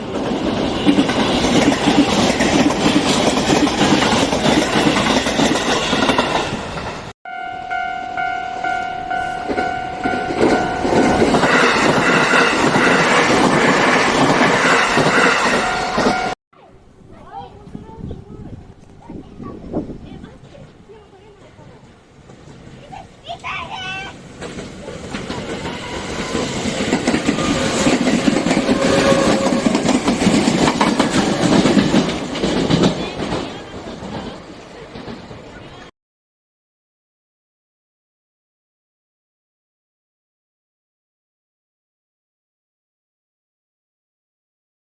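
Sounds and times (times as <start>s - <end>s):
train wheels clattering on rails: 0.0s - 7.1s, 9.4s - 16.4s, 22.2s - 35.9s
level crossing alarm ringing: 7.3s - 13.2s, 14.6s - 16.4s.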